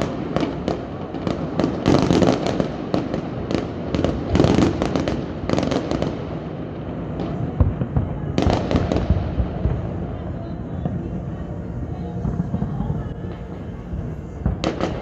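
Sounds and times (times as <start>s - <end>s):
continuous rumble: 0.0s - 15.0s
fireworks bangs and crackles: 0.0s - 15.0s.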